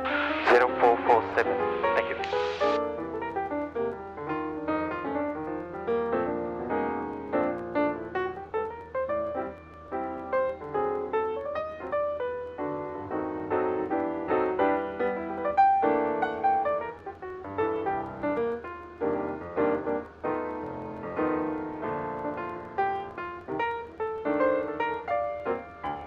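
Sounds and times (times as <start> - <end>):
piano music: 0.0 - 26.0
faint low hum: 0.2 - 2.8.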